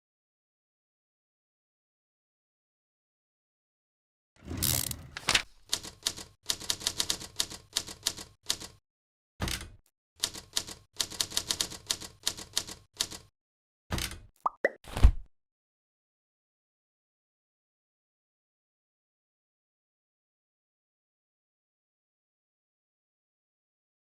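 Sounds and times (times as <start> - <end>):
typewriter keys clacking: 4.6 - 8.8, 10.2 - 13.3.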